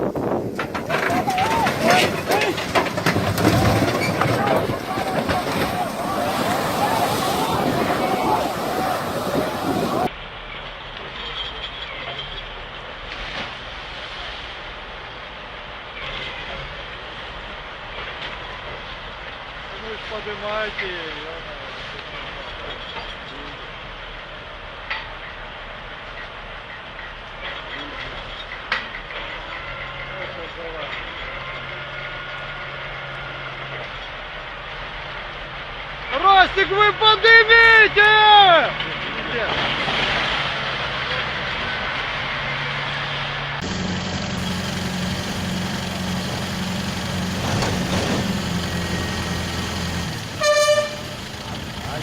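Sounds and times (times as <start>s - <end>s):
burst of rough noise: 43.6s - 52.0s
heavy machinery running: 43.6s - 52.0s.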